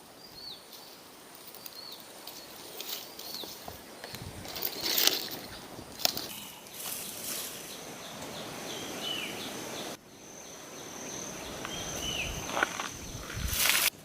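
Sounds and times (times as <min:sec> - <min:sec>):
background hiss: 0:00.0 - 0:14.0
bird chirps: 0:06.3 - 0:13.4.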